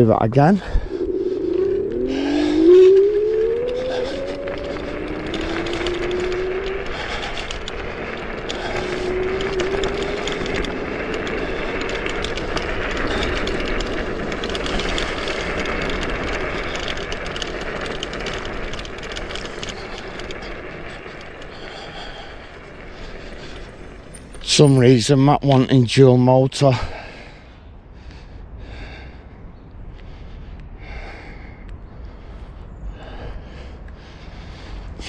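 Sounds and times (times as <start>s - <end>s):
wind rushing: 0.0s - 25.5s
electric scooter motor whine: 0.0s - 25.6s
tyre noise on tarmac: 0.0s - 35.0s.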